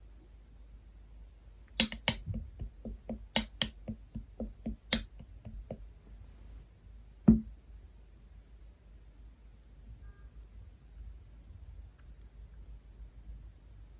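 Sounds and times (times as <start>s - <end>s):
dull thud: 7.3s - 7.5s.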